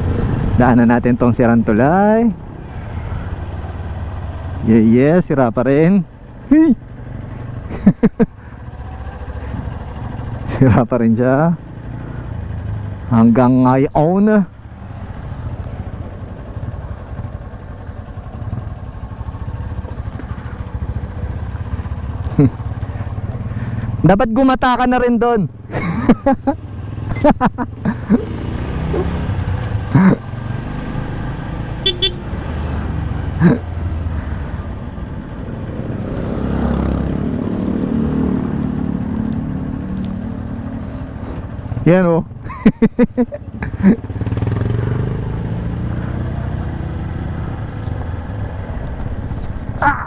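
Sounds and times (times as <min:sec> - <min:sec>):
dirt bike engine running: 0:00.0 - 0:50.0
dirt bike engine revving: 0:25.9 - 0:34.6, 0:35.4 - 0:42.0, 0:42.7 - 0:48.5.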